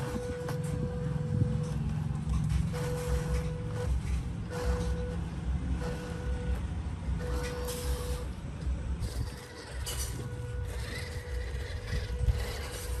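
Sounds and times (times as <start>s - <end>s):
rc truck motor whining: 9.0s - 13.0s.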